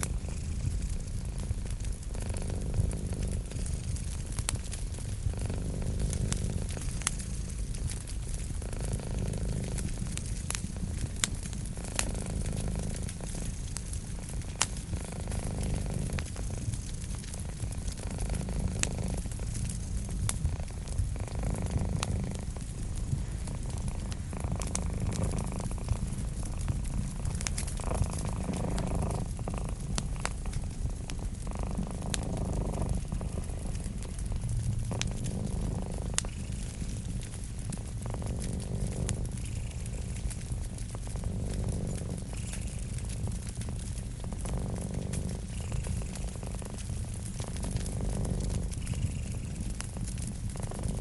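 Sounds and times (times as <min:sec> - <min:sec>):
cat purring: 0:00.0 - 0:51.0
wood fire crackling and popping: 0:00.0 - 0:51.0.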